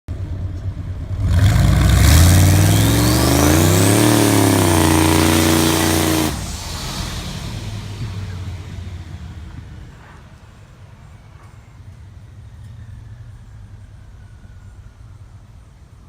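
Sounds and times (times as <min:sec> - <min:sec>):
truck engine revving: 0:01.1 - 0:09.9
turbo whistle: 0:02.4 - 0:07.2.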